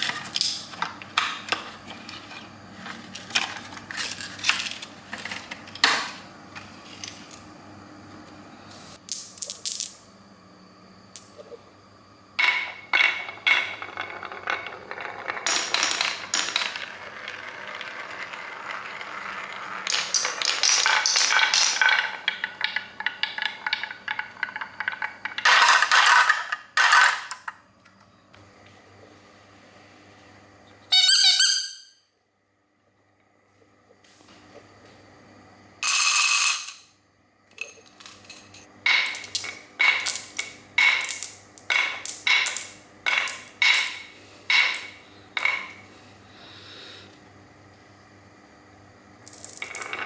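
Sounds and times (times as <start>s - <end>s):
plastic toys rattling and clicking: 12.4s - 27.6s.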